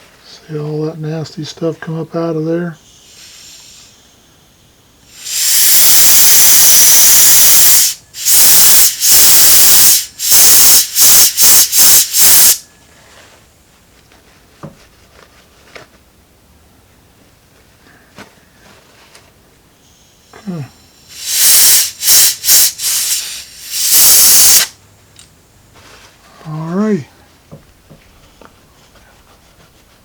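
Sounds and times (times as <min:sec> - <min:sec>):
compressed air blow gun bursts: 0:02.8 - 0:04.3, 0:05.0 - 0:12.6, 0:21.0 - 0:24.8.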